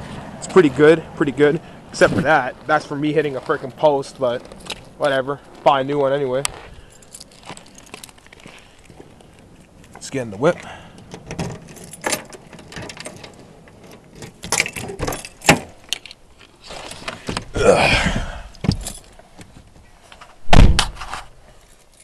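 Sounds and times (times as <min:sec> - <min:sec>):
keys jangling: 0:06.9 - 0:08.4, 0:11.0 - 0:16.2, 0:18.6 - 0:19.2.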